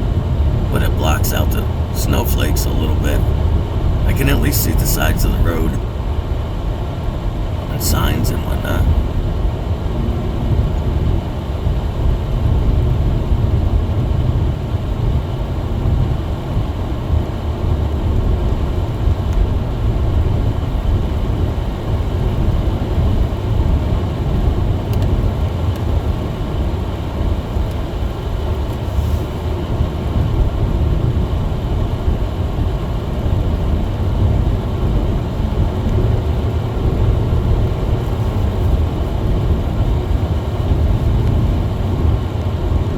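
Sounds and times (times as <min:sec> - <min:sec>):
car interior rumble on snow: 0:08.9 - 0:42.9.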